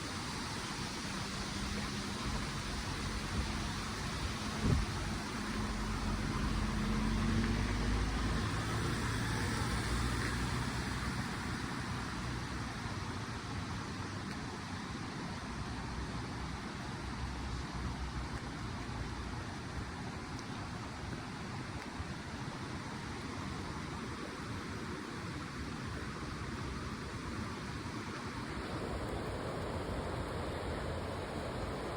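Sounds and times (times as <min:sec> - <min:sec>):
rushing water: 0:00.0 - 0:31.9
passing vehicle engine hum: 0:00.1 - 0:13.2.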